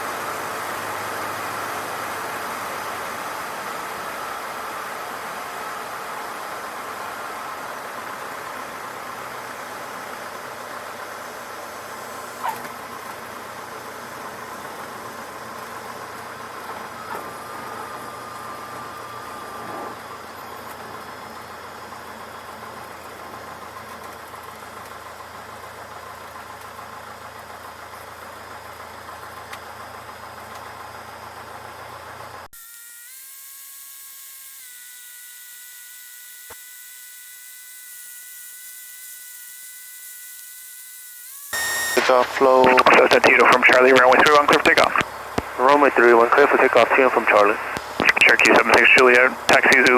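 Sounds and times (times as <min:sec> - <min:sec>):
aircraft cockpit engine hum: 0:00.0 - 0:24.6, 0:41.6 - 0:49.9
electronic buzz of held tones: 0:32.6 - 0:42.0.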